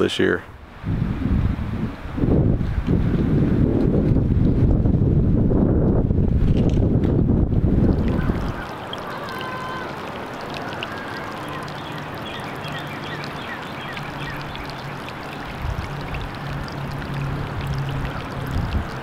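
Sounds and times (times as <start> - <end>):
wind buffeting microphone: 0.5 - 9.0, 13.6 - 19.0.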